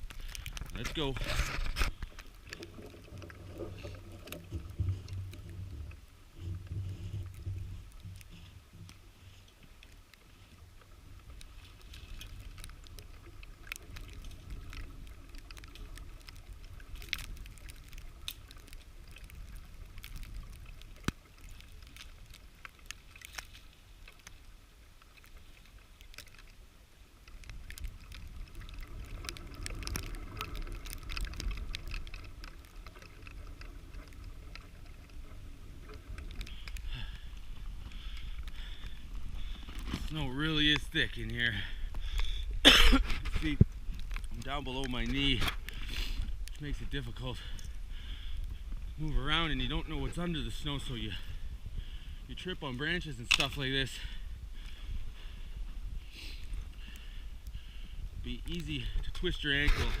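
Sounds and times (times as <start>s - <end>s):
wind rumble on microphone: 27.4s - 60.0s.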